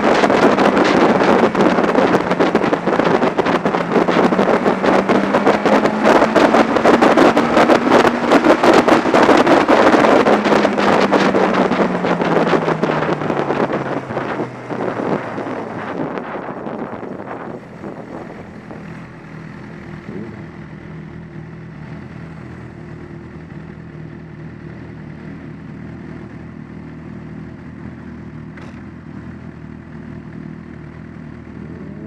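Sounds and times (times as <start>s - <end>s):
wind rush: 0.0s - 20.6s
motorcycle engine idling: 16.4s - 32.0s.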